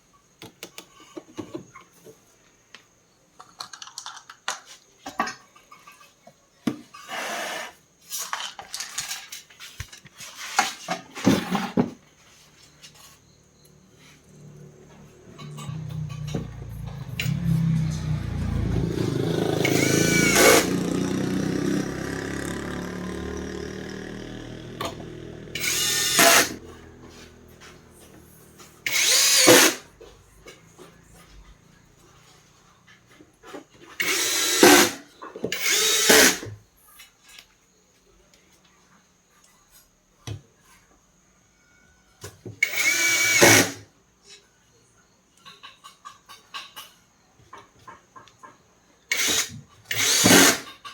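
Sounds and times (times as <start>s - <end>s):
power drill running: 15.5s - 27.3s, 28.9s - 29.8s, 34.0s - 36.5s, 42.6s - 43.8s, 49.1s - 50.7s.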